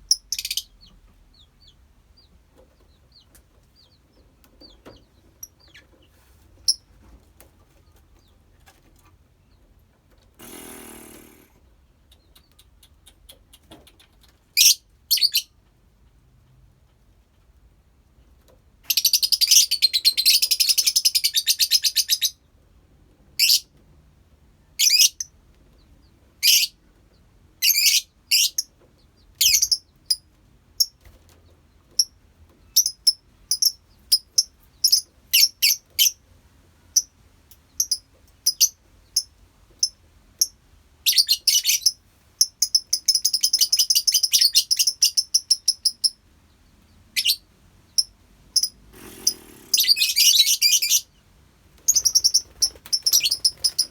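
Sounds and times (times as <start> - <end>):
lovebirds chirping: 0.0 - 6.9, 37.7 - 53.9.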